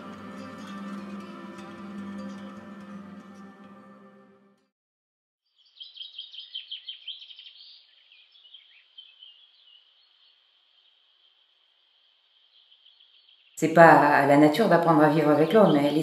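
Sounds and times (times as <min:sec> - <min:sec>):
small birds singing: 0:05.5 - 0:13.7.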